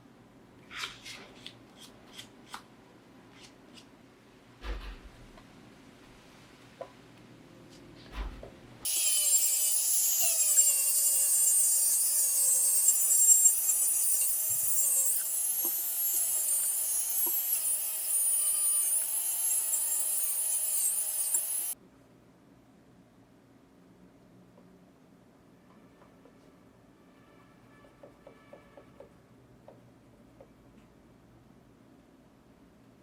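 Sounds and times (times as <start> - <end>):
handheld power tool whining: 8.8 - 21.8.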